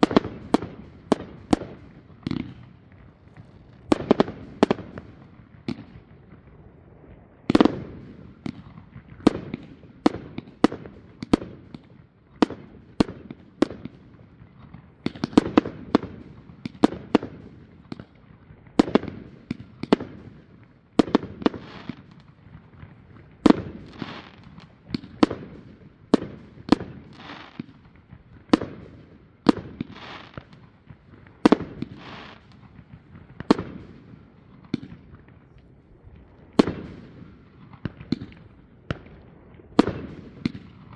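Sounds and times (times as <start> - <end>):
fireworks banging: 0.0 - 6.5, 21.1 - 40.9.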